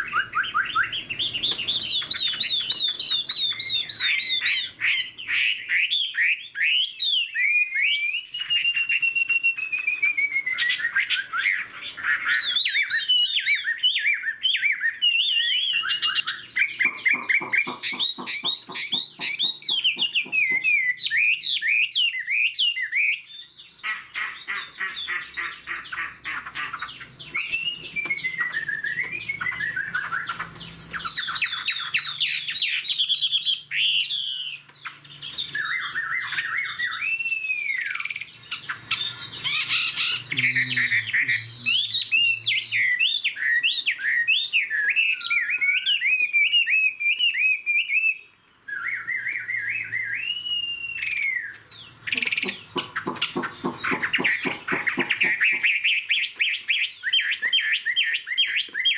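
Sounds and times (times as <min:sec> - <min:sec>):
songbird singing trills and whistles: 0:00.0 - 0:58.9.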